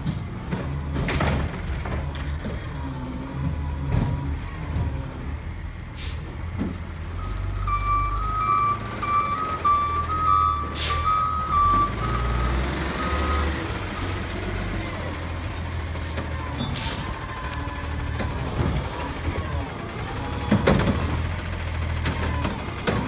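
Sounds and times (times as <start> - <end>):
garbage truck running: 0.0 - 23.0
air brake hisses: 6.0 - 6.3, 10.6 - 11.1
reversing alarm beeping: 7.1 - 15.8.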